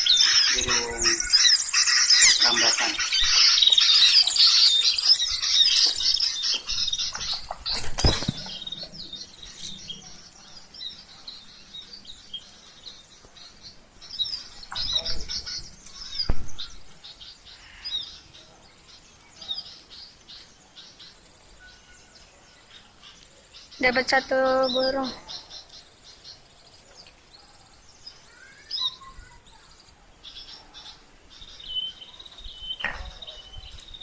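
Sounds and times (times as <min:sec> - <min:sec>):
small birds chirping: 0:00.0 - 0:34.0
wings fluttering: 0:00.6 - 0:09.8.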